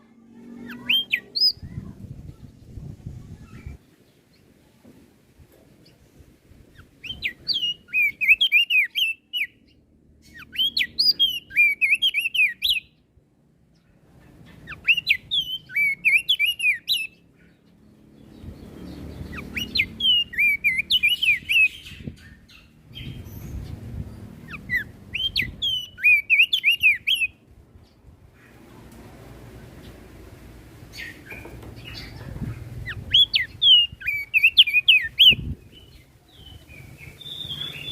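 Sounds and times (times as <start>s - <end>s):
bird singing chattering whistles: 7.0s - 9.6s, 10.3s - 13.0s, 14.6s - 17.2s, 19.2s - 23.7s, 24.5s - 27.4s, 31.0s - 37.9s.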